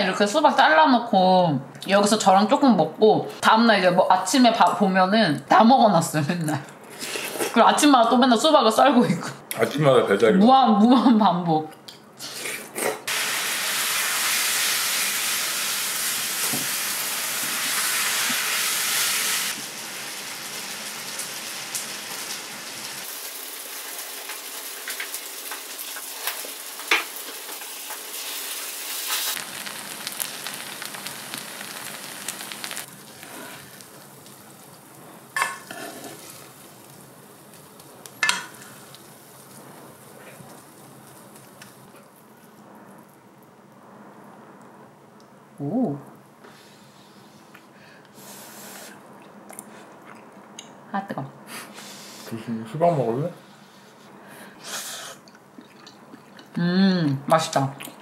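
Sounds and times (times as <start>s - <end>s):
rice sizzling in a pan: 13.1s - 43.5s.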